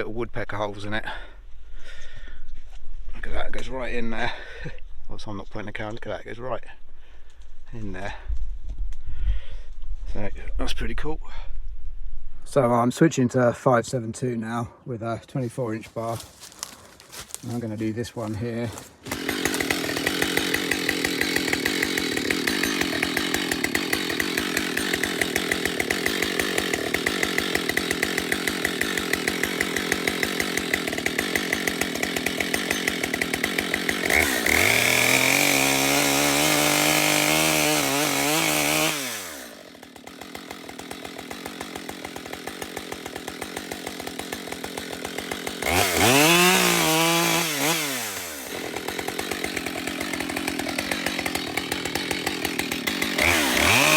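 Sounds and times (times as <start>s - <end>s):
chainsaw idling and revving: 15.5s - 53.9s.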